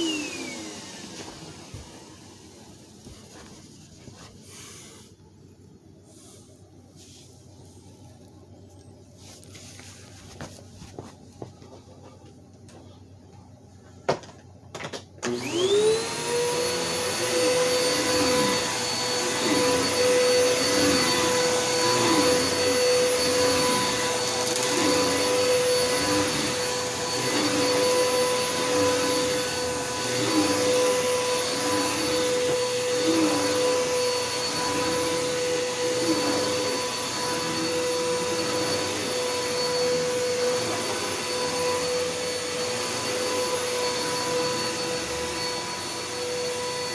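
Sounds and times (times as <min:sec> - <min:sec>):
vacuum cleaner motor whine: 0:00.0 - 0:05.2, 0:13.8 - 0:46.9.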